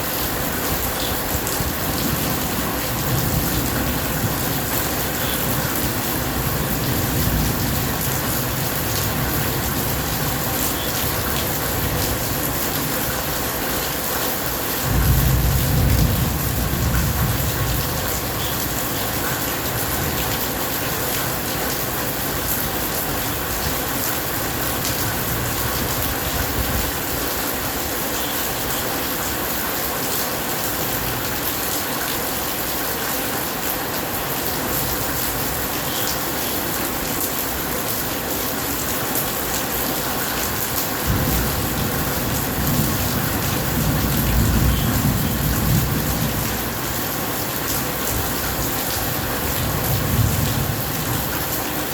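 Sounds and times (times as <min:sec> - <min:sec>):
steady rain: 0:00.0 - 0:51.9
low rumble of thunder: 0:14.8 - 0:18.8, 0:41.0 - 0:46.8, 0:48.1 - 0:51.3.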